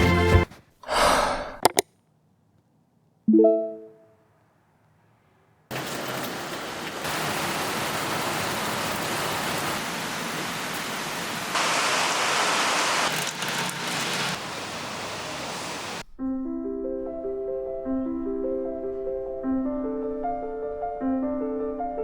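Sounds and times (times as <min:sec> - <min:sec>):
soft piano music: 0:03.3 - 0:04.1, 0:16.2 - 0:22.0.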